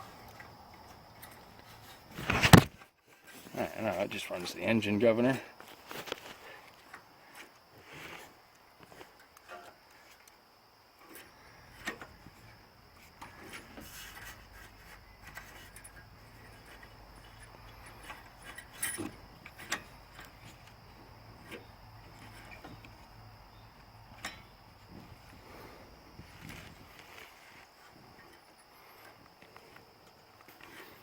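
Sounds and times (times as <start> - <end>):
steady low hum: 10.8 - 31.0.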